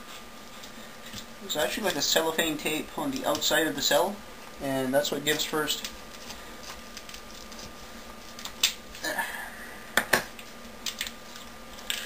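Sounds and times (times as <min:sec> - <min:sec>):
adhesive cracking and crackling: 0:05.3 - 0:09.1, 0:10.0 - 0:12.0.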